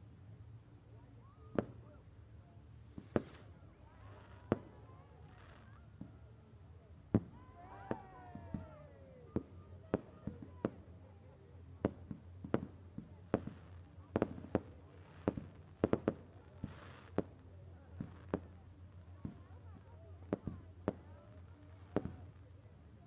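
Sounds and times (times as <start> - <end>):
fireworks bangs and cracks: 1.5 - 1.8, 2.9 - 3.5, 11.8 - 22.3.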